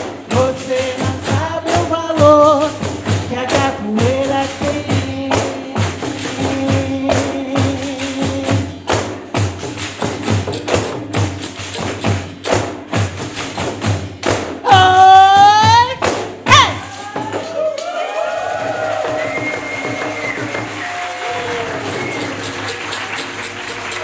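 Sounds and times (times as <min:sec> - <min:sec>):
frame drums with jingles: 0:00.0 - 0:24.0
high voice cry: 0:14.7 - 0:18.2.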